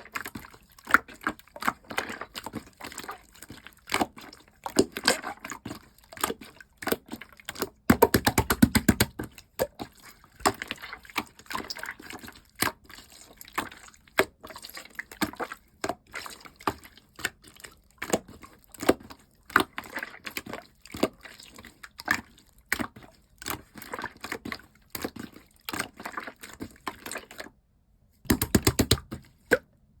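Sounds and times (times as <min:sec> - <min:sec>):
slime squished by hand: 0:28.3 - 0:29.6.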